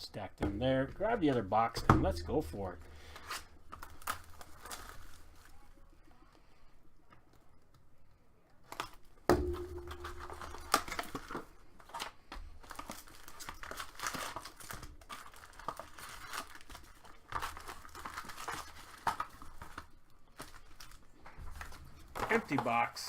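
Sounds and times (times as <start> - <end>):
plastic wrap crinkling and tearing: 3.0 - 5.9, 10.0 - 23.0.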